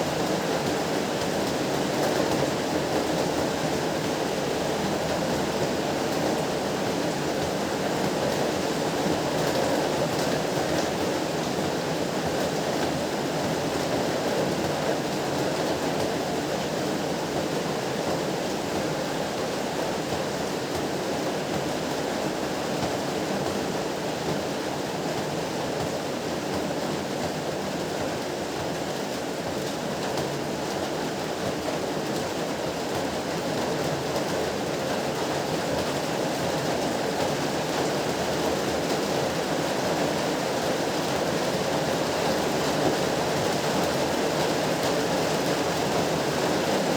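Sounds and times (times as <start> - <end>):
heavy rain falling: 23.2 - 46.9.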